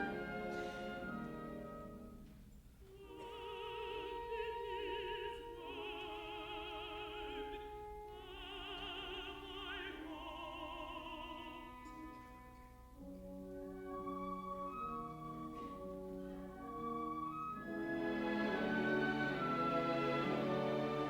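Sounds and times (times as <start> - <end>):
orchestral accompaniment: 0.0 - 2.5, 11.6 - 21.0
contralto voice singing: 2.9 - 12.4.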